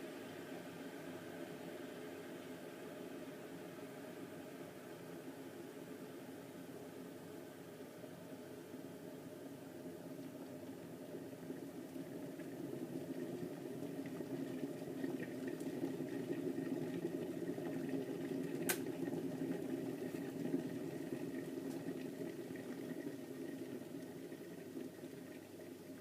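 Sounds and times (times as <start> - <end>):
kettle water heating: 0.0 - 26.0
kettle sharp click: 18.6 - 18.9.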